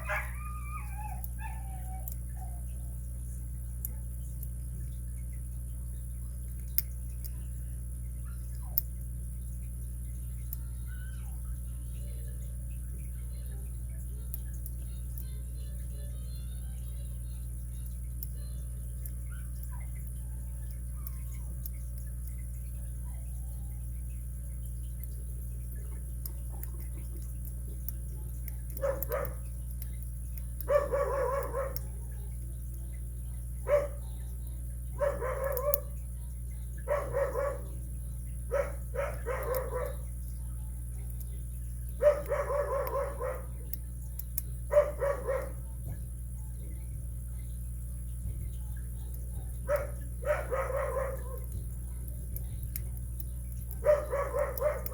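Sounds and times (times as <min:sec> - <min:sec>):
dog barking: 0:00.0 - 0:02.6, 0:28.7 - 0:29.5, 0:30.6 - 0:32.2, 0:33.6 - 0:34.2, 0:35.0 - 0:36.0, 0:36.8 - 0:37.8, 0:38.5 - 0:40.1, 0:42.0 - 0:43.8, 0:44.7 - 0:45.7, 0:49.0 - 0:51.6, 0:53.7 - 0:54.9
steady low hum: 0:00.0 - 0:54.9.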